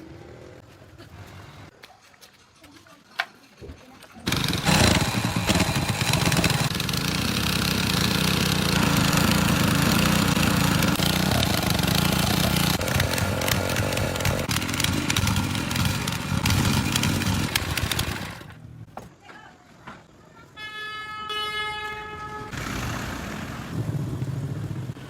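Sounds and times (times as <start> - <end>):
small gasoline engine running: 4.2 - 18.7.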